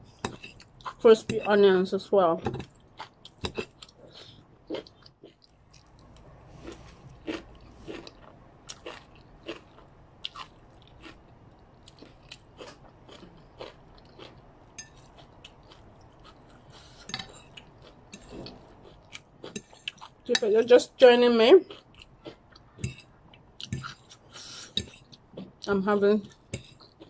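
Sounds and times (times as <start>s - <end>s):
crunchy chewing: 2.6s - 20.3s.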